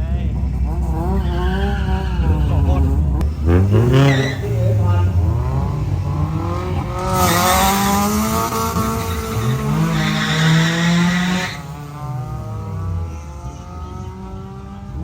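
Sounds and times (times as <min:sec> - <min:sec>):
car engines revving: 0:00.0 - 0:15.0
tyres screeching: 0:01.2 - 0:05.6, 0:06.7 - 0:11.8.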